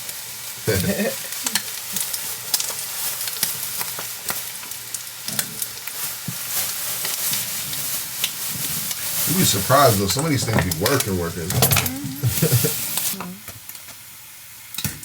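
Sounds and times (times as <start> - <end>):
food sizzling in a hot pan: 0.0 - 15.0.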